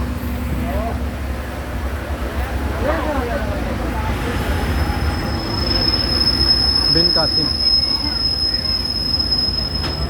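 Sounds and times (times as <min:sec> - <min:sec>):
train rumbling on tracks: 0:00.0 - 0:10.0
metal wheel squeal: 0:05.0 - 0:10.0.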